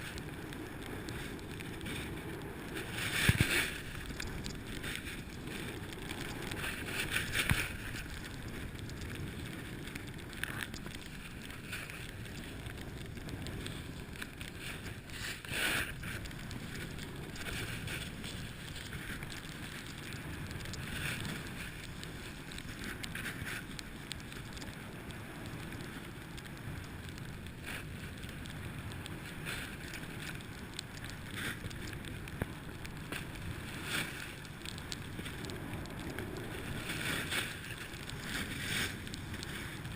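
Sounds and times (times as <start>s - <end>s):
wind on microphone: 0.0s - 39.9s
snowboard edge scraping: 1.0s - 5.9s.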